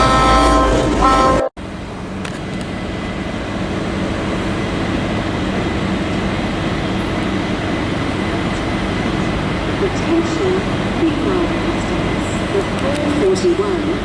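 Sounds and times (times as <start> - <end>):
locomotive horn: 0.0 - 1.5
train idling rumble: 0.0 - 14.0.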